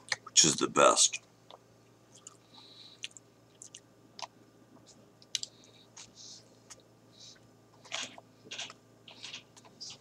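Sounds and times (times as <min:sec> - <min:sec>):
soft chewing crunches: 0:01.5 - 0:10.0
wet mouth clicks: 0:03.0 - 0:05.5.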